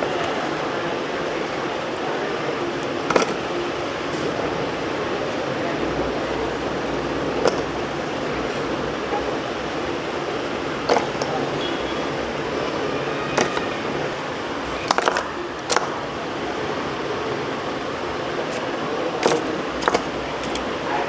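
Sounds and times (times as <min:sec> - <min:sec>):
steady background hum: 0:00.0 - 0:21.0
slate pencils clicking and tapping: 0:02.8 - 0:03.4, 0:07.4 - 0:07.9, 0:10.8 - 0:11.4, 0:14.8 - 0:16.0, 0:19.2 - 0:20.7.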